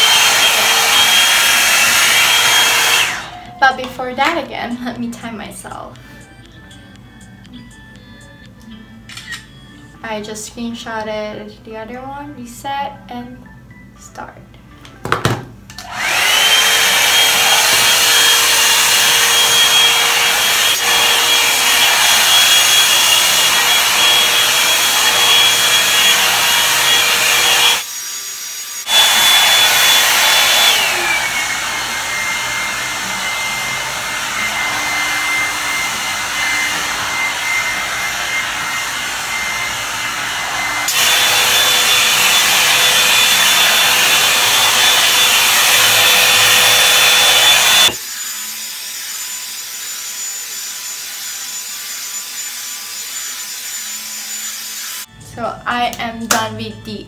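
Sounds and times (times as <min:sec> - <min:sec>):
hot air brush motor whine: 0:00.0 - 0:03.6, 0:15.8 - 0:55.1.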